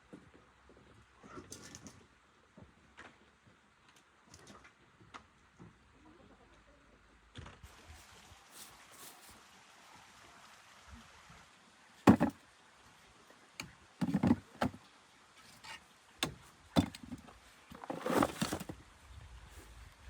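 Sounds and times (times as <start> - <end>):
irregular knocks and thumps: 12.1 - 12.4, 13.6 - 14.8, 16.2 - 18.8
rough scraping noise: 16.8 - 18.8.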